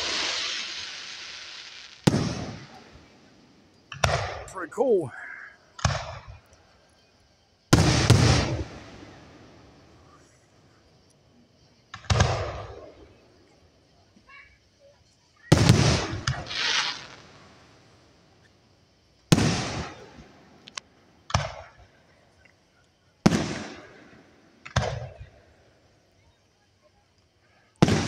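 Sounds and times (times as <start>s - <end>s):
firework shells bursting: 0.0s - 5.0s, 5.7s - 6.9s, 7.6s - 13.2s, 15.5s - 17.9s, 18.9s - 21.9s, 23.3s - 25.4s, 27.8s - 28.0s.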